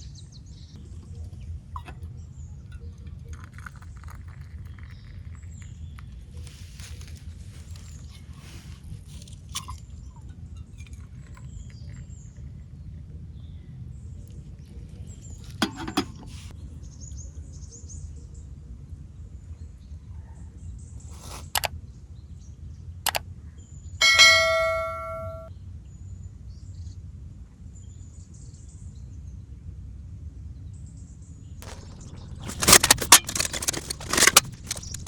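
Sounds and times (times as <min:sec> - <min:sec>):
metal clang ringing: 0:15.6 - 0:16.3, 0:24.0 - 0:25.5
sharp knocks: 0:24.0 - 0:25.5.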